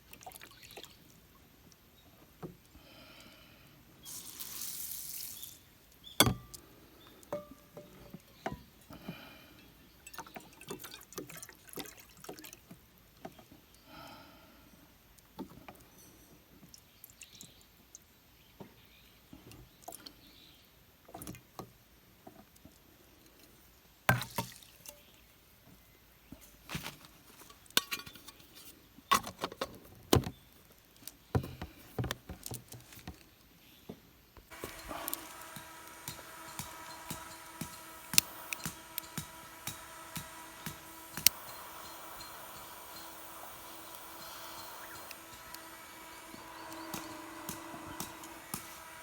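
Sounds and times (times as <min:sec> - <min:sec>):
steady hum with faint tone: 0:34.4 - 0:49.0.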